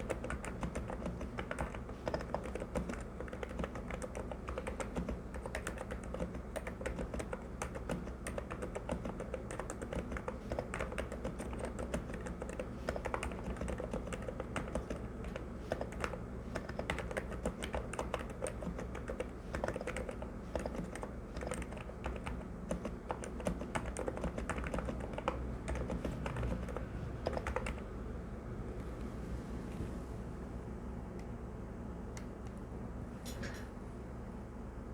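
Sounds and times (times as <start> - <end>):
fast keyboard typing: 0.0 - 27.9
steady low hum: 0.0 - 34.9.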